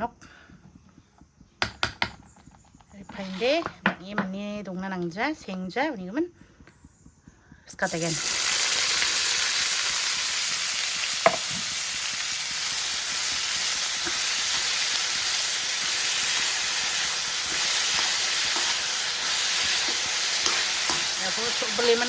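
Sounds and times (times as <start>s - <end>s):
food sizzling in hot oil: 7.8s - 22.0s.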